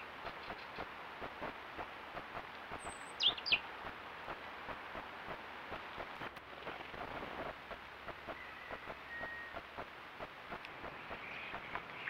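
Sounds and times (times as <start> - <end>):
steady hiss: 0.0 - 12.0
faint irregular ticks: 0.2 - 12.0
small bird high calls: 2.8 - 3.6, 8.3 - 9.6, 10.8 - 12.0.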